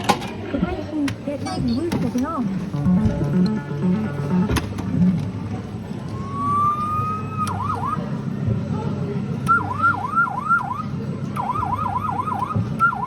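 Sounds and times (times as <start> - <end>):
electronic siren wailing: 6.1 - 8.1, 9.5 - 13.0.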